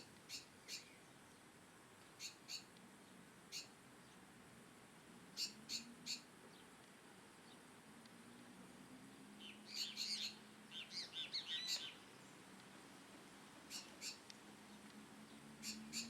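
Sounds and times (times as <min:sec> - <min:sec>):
small birds chirping: 0:00.0 - 0:04.3, 0:05.4 - 0:07.7, 0:09.1 - 0:12.8, 0:13.6 - 0:16.0.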